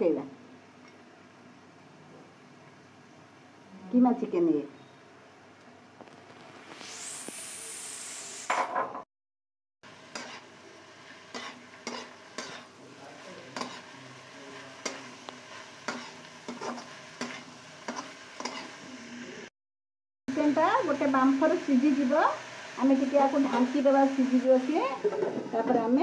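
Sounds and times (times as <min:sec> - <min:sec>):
food sizzling in hot oil: 0:06.2 - 0:08.5, 0:09.8 - 0:19.5, 0:20.3 - 0:26.0
spatula scraping a wok: 0:10.0 - 0:19.0.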